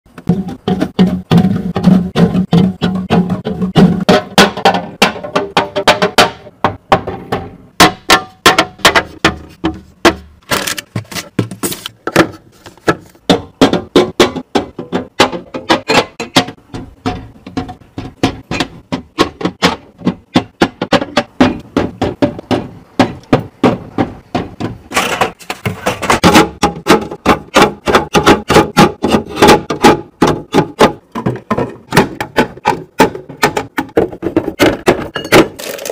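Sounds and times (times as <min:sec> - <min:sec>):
containers clacking set down: 0:34.3 - 0:35.9.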